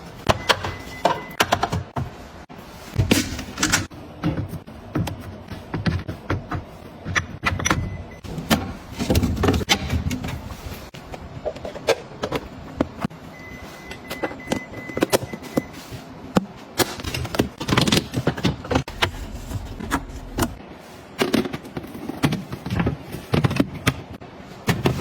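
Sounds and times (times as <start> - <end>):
items clicking and clattering: 16.5 - 20.6.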